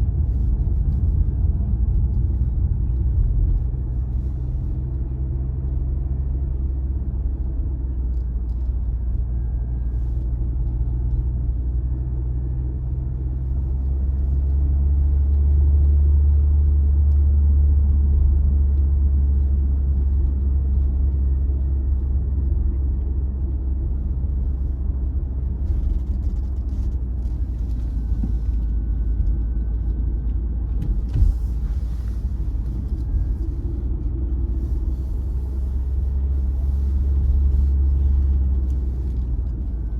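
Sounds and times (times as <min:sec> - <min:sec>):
car engine and road rumble: 0:00.0 - 0:39.9
short thump: 0:30.7 - 0:32.3.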